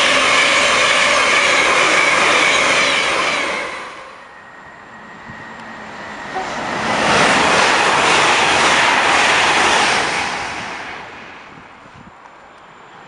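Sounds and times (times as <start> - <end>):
express train rushing past: 0.0 - 13.0.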